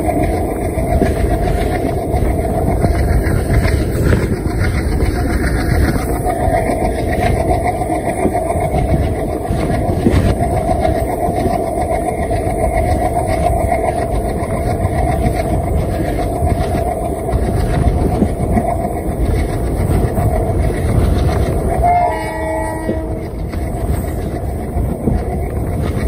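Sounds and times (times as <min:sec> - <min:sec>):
train wheels and wind rumble: 0:00.0 - 0:26.0
locomotive horn: 0:21.7 - 0:23.2.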